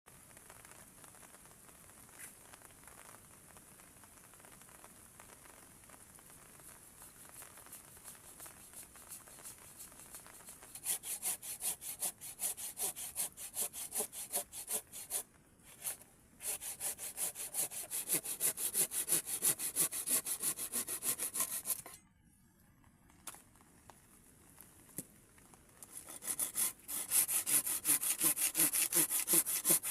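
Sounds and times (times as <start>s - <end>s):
rain hissing: 0.1s - 12.4s.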